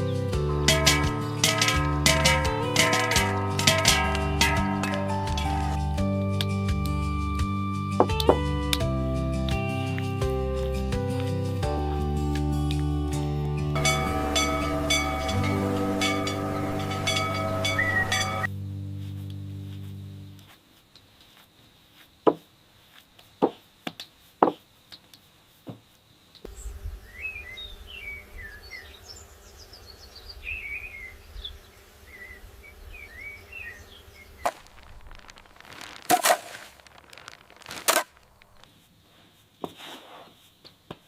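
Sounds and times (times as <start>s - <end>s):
low outdoor rumble: 0.2s - 7.0s, 13.8s - 20.4s
sharp knocks: 0.7s - 5.9s
birds chirping: 13.8s - 18.5s, 26.5s - 35.9s
rustling bursts: 34.4s - 39.0s.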